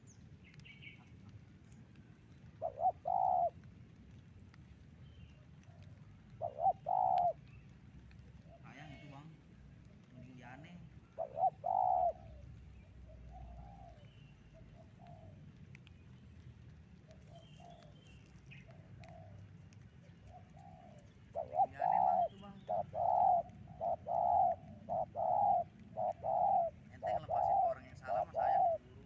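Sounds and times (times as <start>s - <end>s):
dove cooing: 2.5s - 3.7s, 5.6s - 9.1s, 9.9s - 15.8s, 17.1s - 29.0s.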